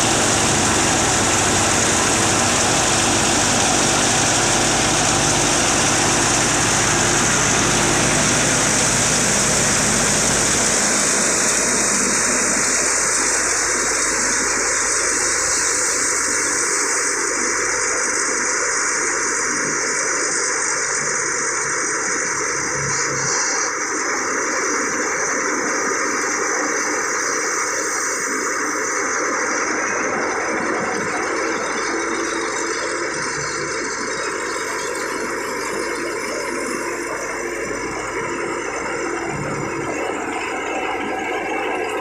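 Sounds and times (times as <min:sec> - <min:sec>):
thresher rushing hiss: 0:00.0 - 0:14.4
tractor engine low hum: 0:00.0 - 0:23.7, 0:29.0 - 0:42.0.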